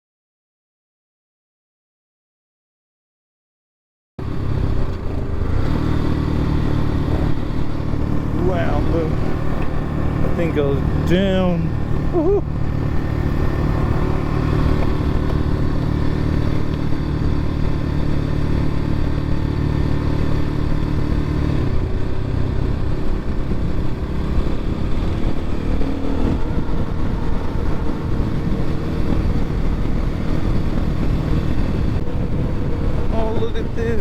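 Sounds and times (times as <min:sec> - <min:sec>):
dirt bike engine running: 0:04.2 - 0:34.0.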